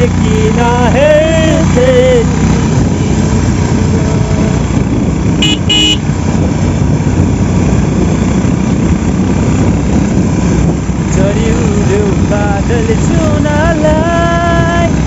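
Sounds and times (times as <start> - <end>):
vehicle engine running: 0.0 - 15.0
short horn beeps: 5.4 - 6.1.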